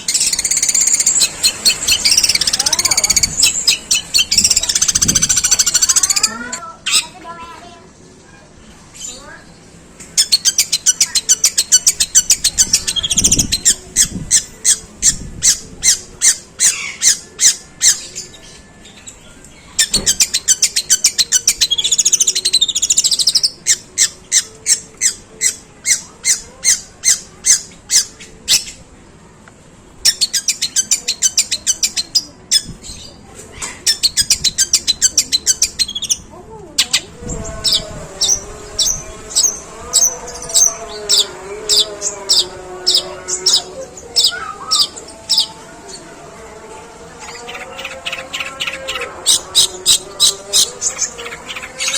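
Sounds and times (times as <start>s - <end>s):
bird singing harsh repeated notes: 0.0s - 7.4s, 10.2s - 28.8s, 33.8s - 46.1s.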